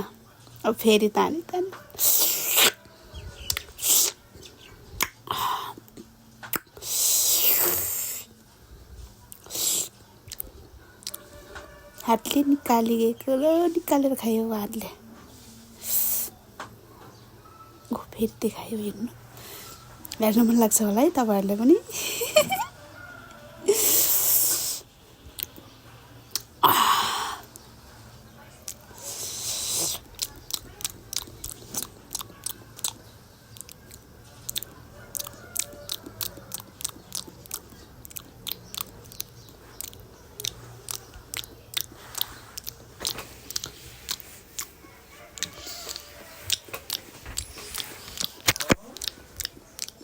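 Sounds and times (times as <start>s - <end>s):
small mouth clicks: 1.9s - 2.8s, 3.4s - 4.2s, 5.0s - 8.3s, 9.3s - 11.2s, 26.3s - 26.6s, 28.7s - 44.8s, 45.4s - 50.0s
mouth slurping marrow: 1.9s - 4.3s, 6.6s - 8.3s, 9.3s - 11.2s, 23.7s - 25.5s, 28.7s - 33.0s
person slurping from a bone: 2.0s - 2.8s, 3.6s - 4.2s, 6.8s - 8.3s.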